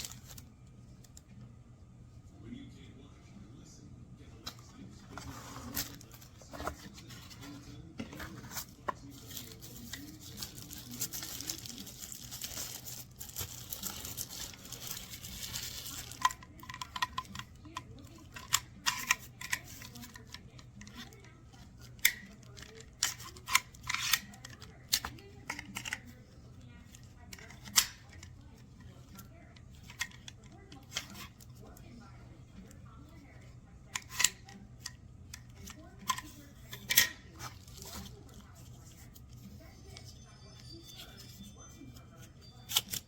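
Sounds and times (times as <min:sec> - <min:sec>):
packaging rustling and tearing: 0:00.0 - 0:00.5, 0:08.3 - 0:16.6.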